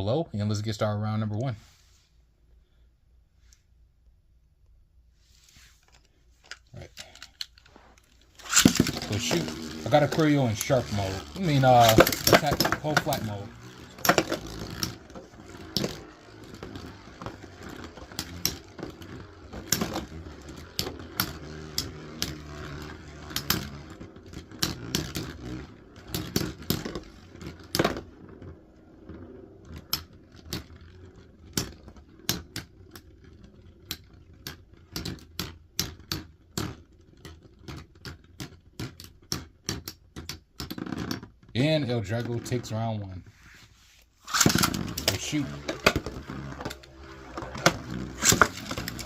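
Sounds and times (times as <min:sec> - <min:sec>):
spinning tops whirring: 0:05.9 - 0:42.9, 0:44.2 - 0:49.0
metal tops clacking together: 0:08.4 - 0:16.9, 0:44.3 - 0:49.0.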